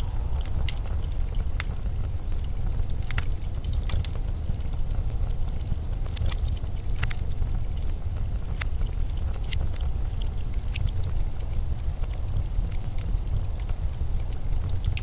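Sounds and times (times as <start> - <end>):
gusting wind rumble: 0.0 - 8.7
sharp crackles and ticks: 0.0 - 15.0.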